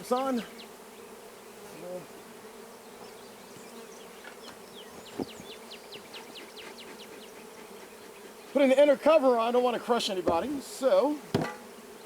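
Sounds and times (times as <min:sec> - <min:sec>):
bees flying past: 0:00.0 - 0:12.0
honeybees buzzing: 0:00.0 - 0:12.0
sharp knock: 0:11.3 - 0:11.6.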